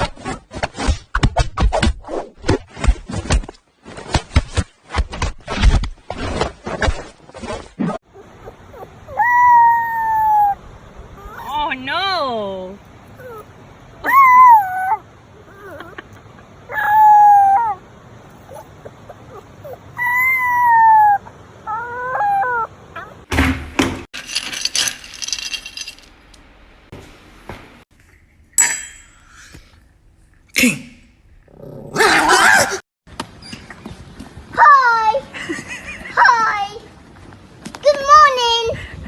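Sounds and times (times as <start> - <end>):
animal crying: 8.1 - 11.7, 13.1 - 23.3.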